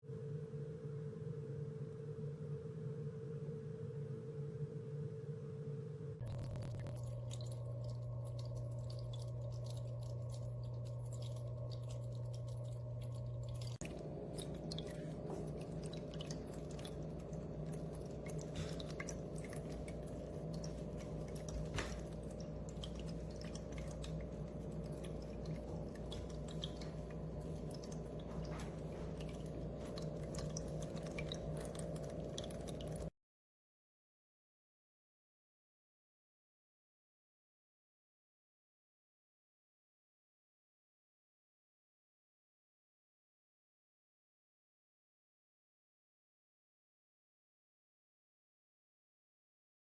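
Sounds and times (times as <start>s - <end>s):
pump humming: 6.3s - 33.1s
water trickling and dripping: 6.3s - 33.1s.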